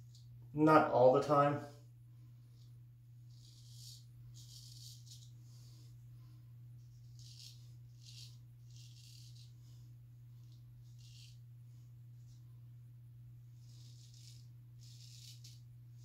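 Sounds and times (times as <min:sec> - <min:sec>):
steady low hum: 0:00.0 - 0:16.0
razor scraping stubble: 0:03.2 - 0:05.3, 0:06.8 - 0:09.6, 0:10.4 - 0:11.5, 0:13.6 - 0:16.0.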